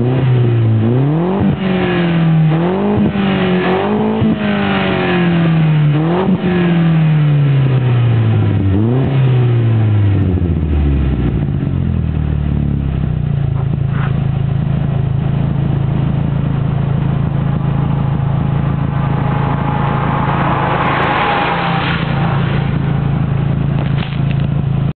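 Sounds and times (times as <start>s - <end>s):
car engine revving down: 0.0s - 24.9s
car engine idling: 9.7s - 24.9s.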